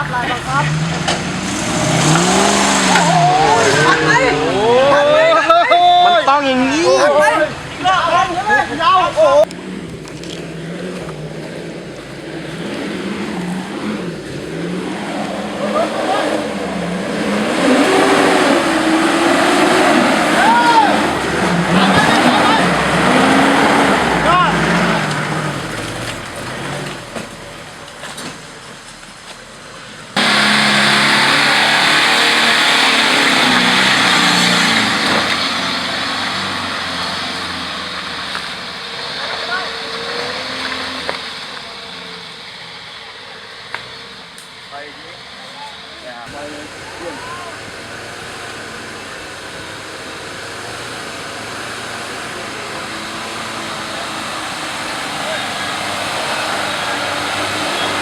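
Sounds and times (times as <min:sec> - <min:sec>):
off-road engine revving: 0:00.0 - 0:58.0.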